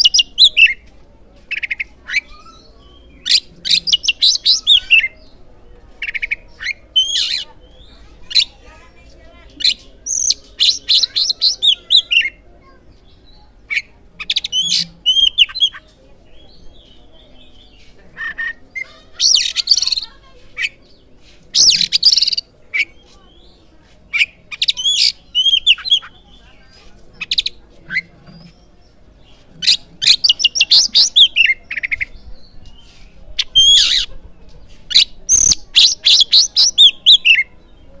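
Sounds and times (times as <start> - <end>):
bird singing whistled notes: 9.6 - 12.4, 14.3 - 15.7, 29.6 - 32.5, 35.0 - 37.6
bird singing chirps and whistles: 29.7 - 31.9, 35.3 - 37.5.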